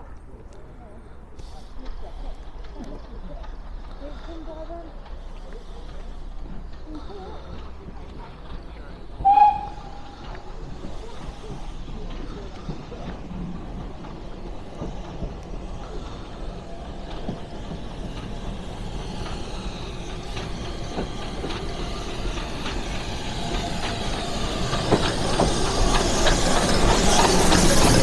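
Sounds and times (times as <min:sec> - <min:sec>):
train running on rails: 0:00.0 - 0:28.0
wheels clicking on rails: 0:00.0 - 0:28.0.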